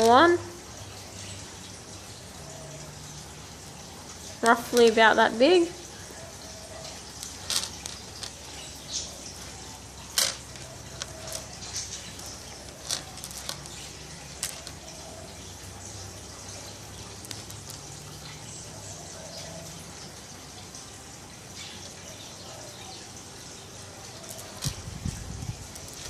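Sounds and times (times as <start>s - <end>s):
hands handling twine: 4.4s - 5.1s, 6.8s - 15.2s, 16.8s - 18.1s, 24.1s - 26.0s.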